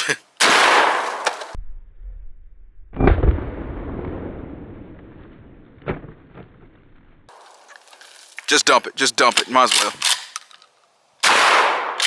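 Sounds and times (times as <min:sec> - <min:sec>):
shotgun boom: 0:02.9 - 0:06.4.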